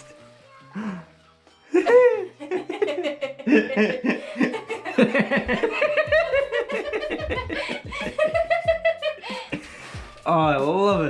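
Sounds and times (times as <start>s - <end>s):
person chuckling: 1.7s - 9.8s.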